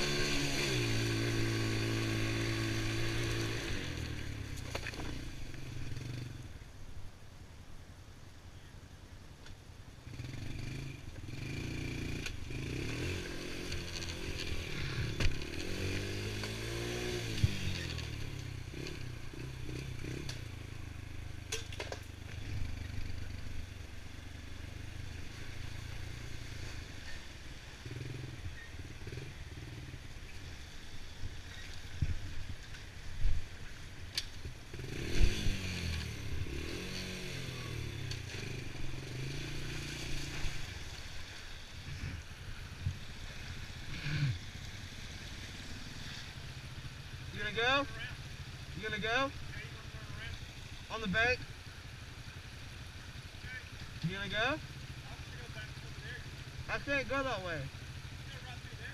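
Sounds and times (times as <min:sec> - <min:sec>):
small atv engine revving: 0:00.0 - 0:06.4, 0:10.0 - 0:32.9, 0:33.6 - 0:51.3.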